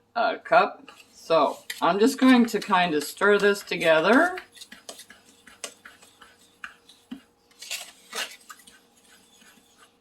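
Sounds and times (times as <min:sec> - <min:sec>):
utensil stirring dry powder in bowl: 0:00.8 - 0:10.0
clinks and scrapes: 0:07.6 - 0:09.2.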